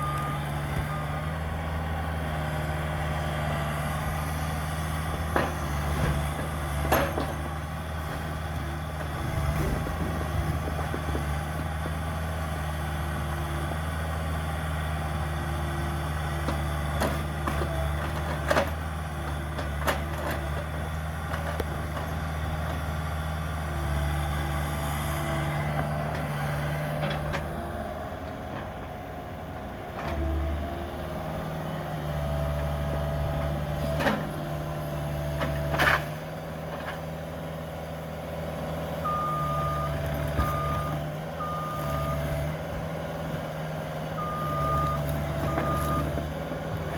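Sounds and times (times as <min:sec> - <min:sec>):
reversing alarm beeps: 0:00.0 - 0:01.2, 0:39.0 - 0:42.2, 0:44.2 - 0:46.1
diesel engine under load: 0:00.0 - 0:46.9.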